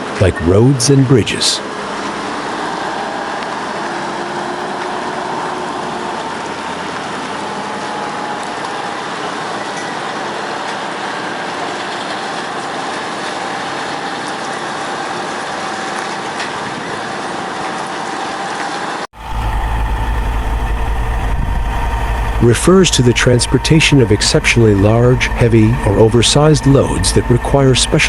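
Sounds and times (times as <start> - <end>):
deep engine rumble: 19.2 - 28.0
mechanical hiss with whine: 19.2 - 28.0.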